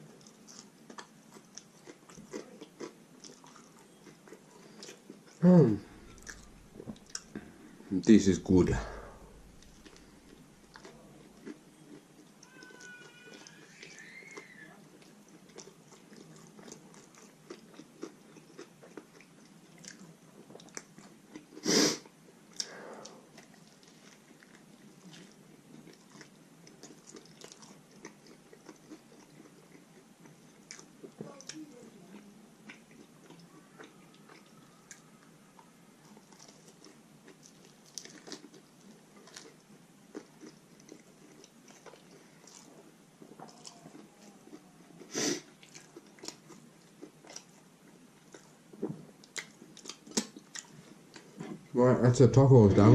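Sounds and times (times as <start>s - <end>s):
person biting and chewing: 0.2s - 7.6s, 8.8s - 13.6s, 36.1s - 42.7s, 49.2s - 51.6s.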